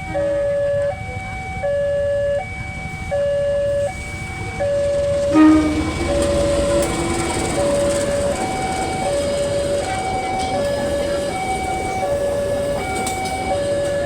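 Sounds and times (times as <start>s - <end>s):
train rumbling: 0.0s - 14.0s
two-tone crossing alarm: 0.0s - 14.0s
train horn blast: 5.0s - 8.0s.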